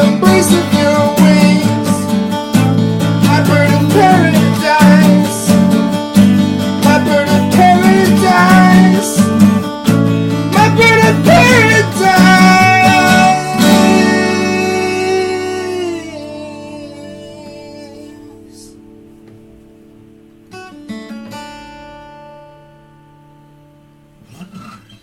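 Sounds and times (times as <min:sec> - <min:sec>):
person singing wordless melody: 0:00.0 - 0:02.2, 0:03.2 - 0:05.7, 0:06.8 - 0:09.6, 0:10.5 - 0:19.0
acoustic guitar strumming: 0:00.0 - 0:25.0.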